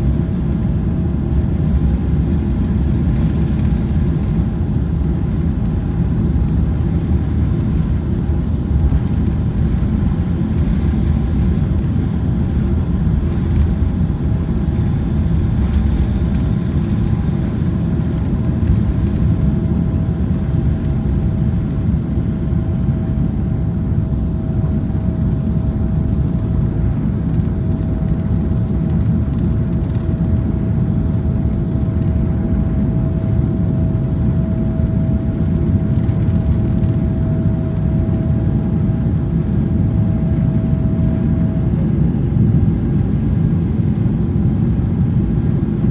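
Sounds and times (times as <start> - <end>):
faint engine whine: 0.0 - 45.9
jet engines deep rumble in cabin: 0.0 - 45.9.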